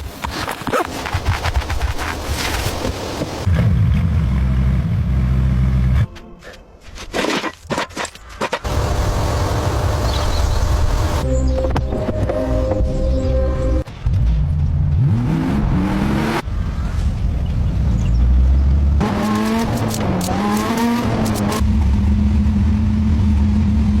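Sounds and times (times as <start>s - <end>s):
car engine revving: 12.6s - 24.0s.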